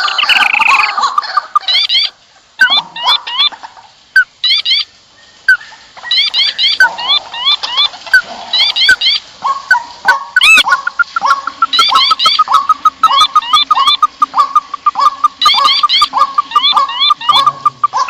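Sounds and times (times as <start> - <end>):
birds chirping chorus: 0.0 - 3.4, 10.4 - 18.0
fast run of short bird notes: 0.0 - 3.5, 10.4 - 18.0.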